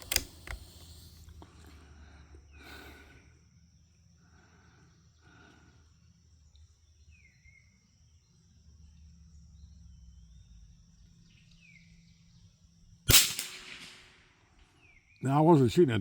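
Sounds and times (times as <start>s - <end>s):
high insect drone: 0.0s - 13.1s
birds chirping: 4.3s - 12.8s, 14.7s - 16.0s.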